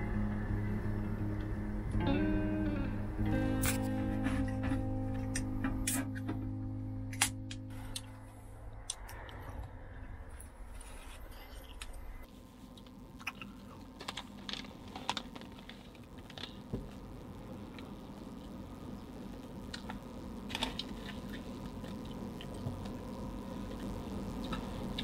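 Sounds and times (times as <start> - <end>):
steady low hum: 0.0 - 25.0
chewing dried fish snack: 12.7 - 16.5
plastic bag crinkling: 13.7 - 16.6.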